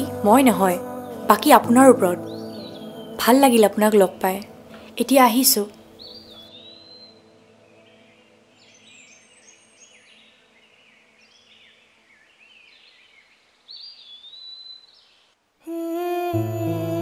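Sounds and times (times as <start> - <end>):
music with held notes: 0.0 - 5.0, 15.7 - 17.0
songbirds chirping and calling: 0.0 - 15.4.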